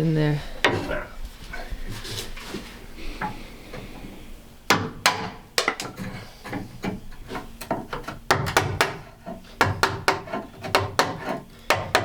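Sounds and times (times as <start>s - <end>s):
wooden boards knocking: 4.7s - 12.0s.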